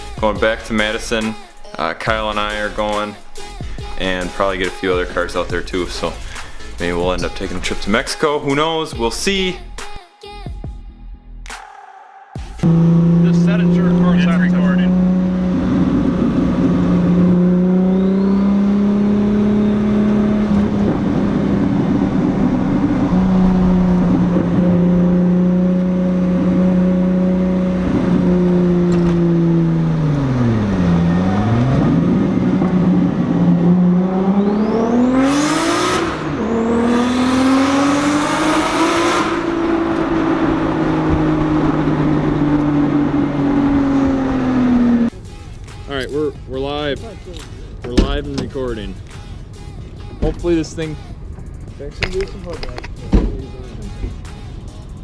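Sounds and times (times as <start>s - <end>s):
turbocharged car engine revving: 0.0s - 8.3s, 12.4s - 45.2s.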